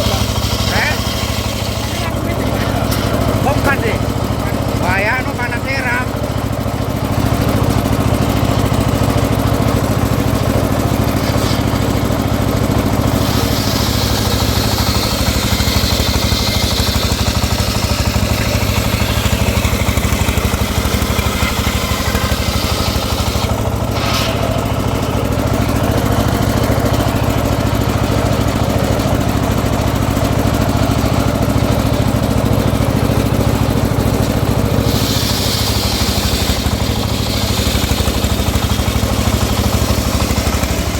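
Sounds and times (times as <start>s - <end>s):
sawmill engine running: 0.0s - 40.9s.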